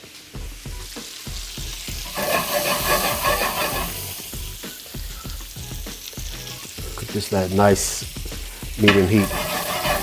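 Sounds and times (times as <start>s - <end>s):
vegetables sizzling in a pan: 0.0s - 10.0s
scraping in a pan: 1.9s - 4.5s, 8.8s - 10.0s.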